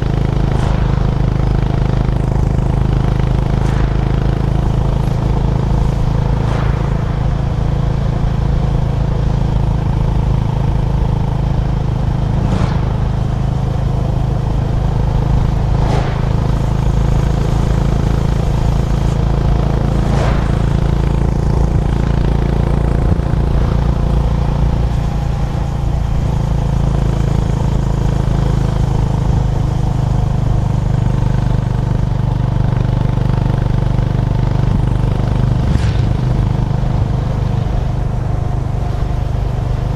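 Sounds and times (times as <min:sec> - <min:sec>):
brief whooshes: 0:00.0 - 0:25.8, 0:34.8 - 0:38.6
motorcycle engine running: 0:00.0 - 0:39.9.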